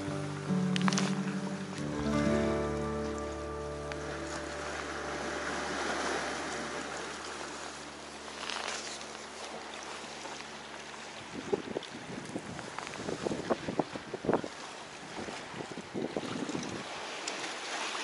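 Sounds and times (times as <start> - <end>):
sea water washing against rocks: 0.0 - 2.4, 3.8 - 18.0
wind on microphone: 11.2 - 17.1.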